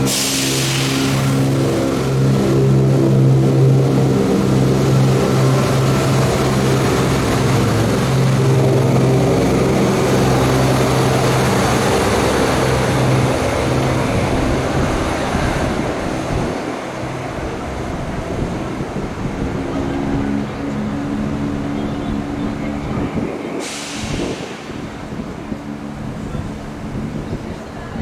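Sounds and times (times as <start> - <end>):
hiss: 0.0 - 1.7, 23.6 - 25.1
diesel train engine drone: 0.0 - 28.0.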